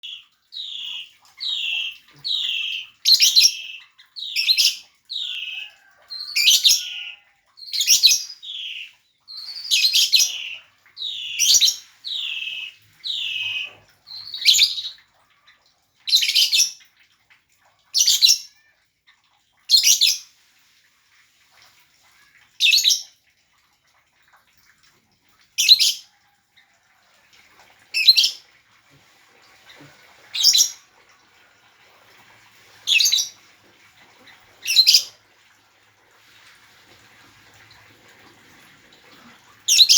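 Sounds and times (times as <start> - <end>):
lovebird chirping and shrieking: 0.6 - 15.0, 32.9 - 33.3.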